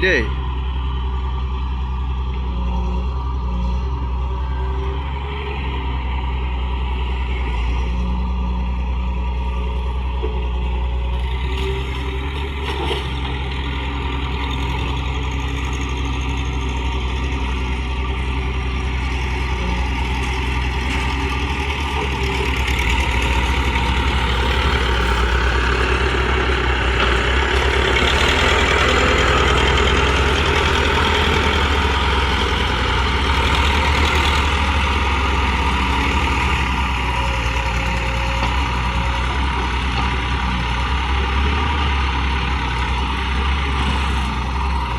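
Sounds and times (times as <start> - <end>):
toy excavator engine drone: 0.0 - 44.9.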